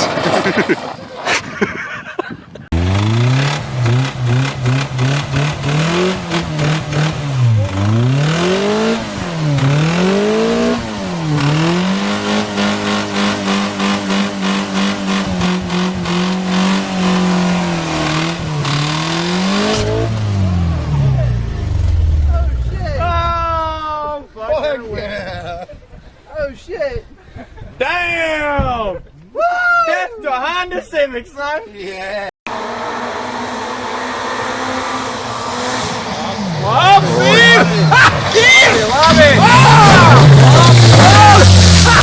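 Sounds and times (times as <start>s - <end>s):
car engine revving: 2.7s - 23.4s, 32.5s - 42.0s.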